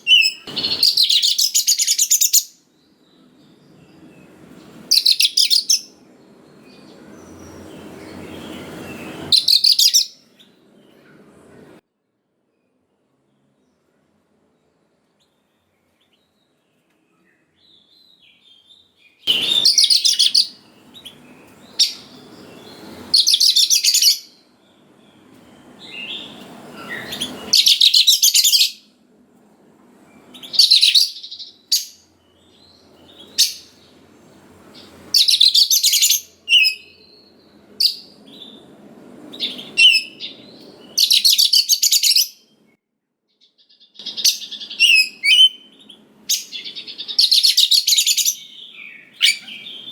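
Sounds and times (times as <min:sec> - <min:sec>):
magpie-robin singing: 0:00.0 - 0:02.7, 0:04.7 - 0:06.0, 0:06.6 - 0:10.6, 0:17.6 - 0:24.4, 0:25.0 - 0:28.9, 0:30.3 - 0:34.0, 0:34.7 - 0:38.7, 0:39.3 - 0:42.6, 0:43.4 - 0:49.9.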